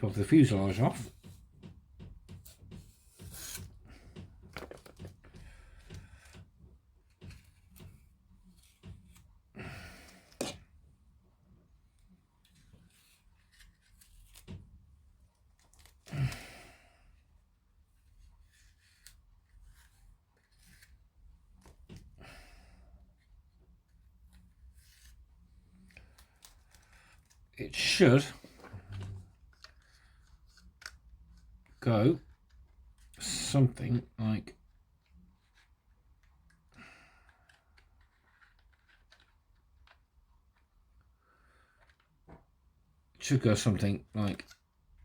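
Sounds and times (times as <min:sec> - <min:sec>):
plastic parts clicking and tapping: 0:01.1 - 0:09.2, 0:37.5 - 0:40.7.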